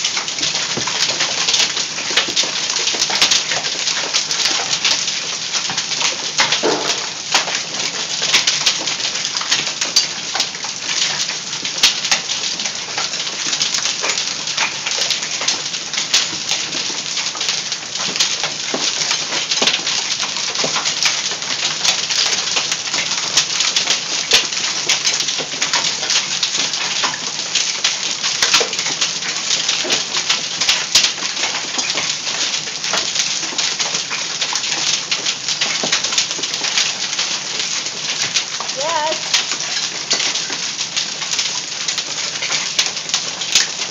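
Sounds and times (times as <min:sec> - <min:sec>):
hailstones clattering: 0:00.0 - 0:43.9
rain hissing: 0:35.0 - 0:43.9.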